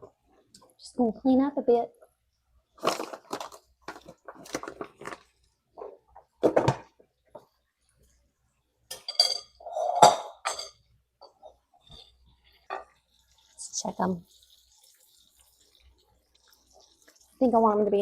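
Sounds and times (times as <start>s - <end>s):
dishes knocking and clattering: 5.8s - 7.5s, 8.9s - 13.0s.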